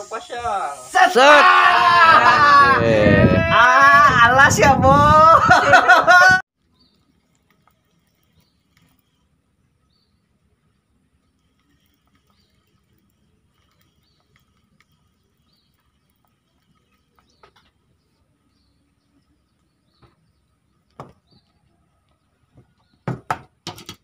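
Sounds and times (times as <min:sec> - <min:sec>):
faint bird chirps: 0:06.6 - 0:23.0.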